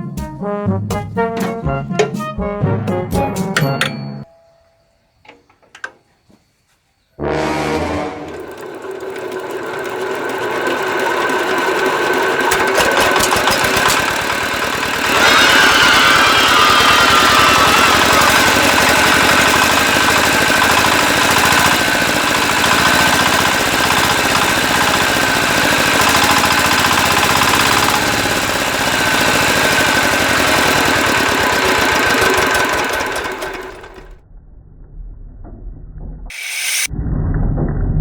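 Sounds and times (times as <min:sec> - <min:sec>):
diesel tractor engine knocking: 0:08.4 - 0:34.0.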